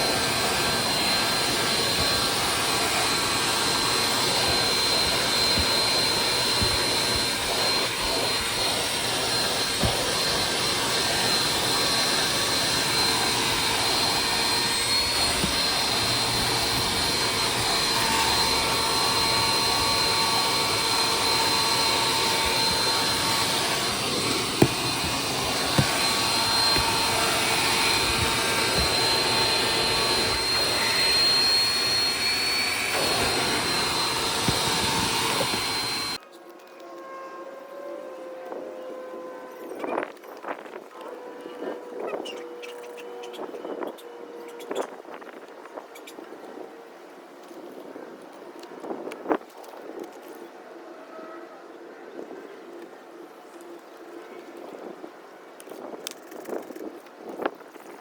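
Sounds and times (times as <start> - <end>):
vacuum cleaner running: 0.0 - 36.2.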